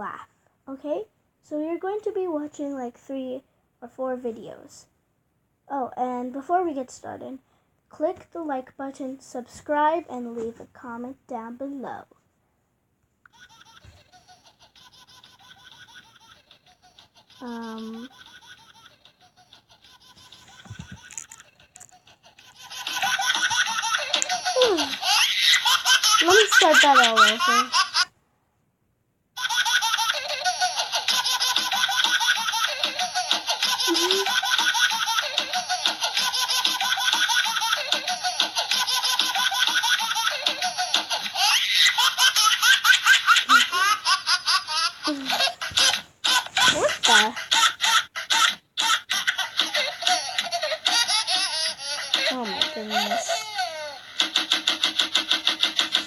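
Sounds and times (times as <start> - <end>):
baby giggling: 13.3 - 28.1, 29.4 - 56.0.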